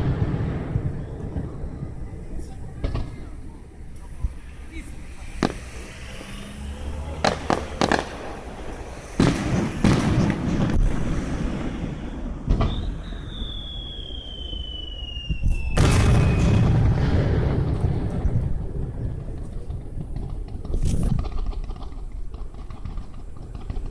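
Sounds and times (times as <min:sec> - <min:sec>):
fireworks cracks and booms: 0:00.0 - 0:03.5, 0:05.3 - 0:05.9, 0:07.1 - 0:23.9
high whistle sliding down: 0:12.5 - 0:16.6.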